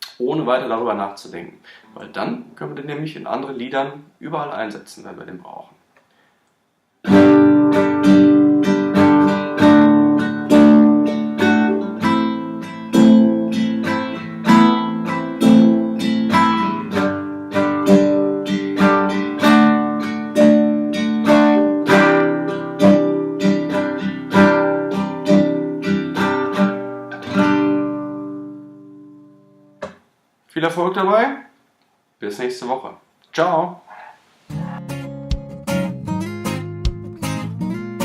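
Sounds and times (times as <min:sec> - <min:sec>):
acoustic guitar strumming: 0:07.0 - 0:30.0, 0:34.5 - 0:38.0.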